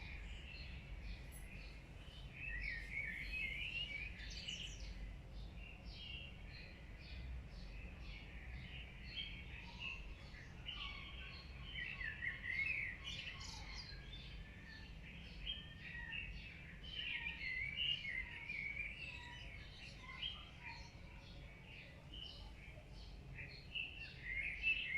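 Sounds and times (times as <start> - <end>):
birds chirping chorus: 0.0 - 24.9.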